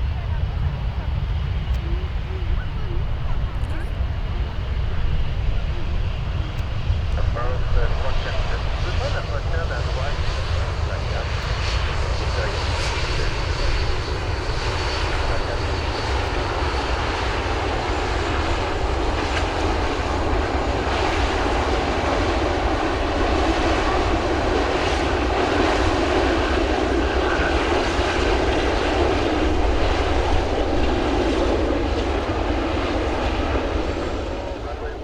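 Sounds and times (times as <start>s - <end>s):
airliner engines rumbling: 0.0s - 35.0s.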